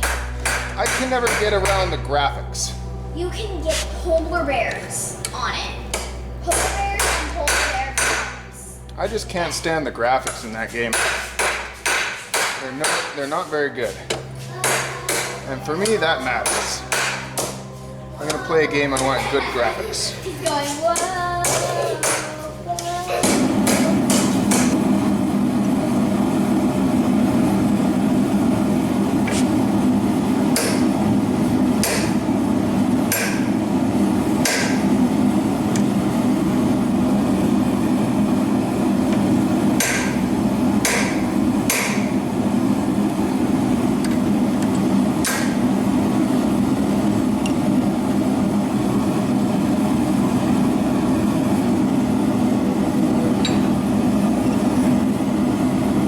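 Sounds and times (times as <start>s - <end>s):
hammer striking hot iron on anvil: 0.0s - 2.0s, 5.2s - 8.5s, 10.2s - 13.4s, 14.1s - 17.6s, 20.9s - 22.4s, 23.2s - 24.8s, 30.5s - 31.0s, 31.8s - 32.3s, 33.1s - 33.6s, 34.4s - 35.0s, 39.1s - 42.2s, 45.2s - 45.8s, 53.4s - 53.9s
forge running: 0.0s - 56.0s.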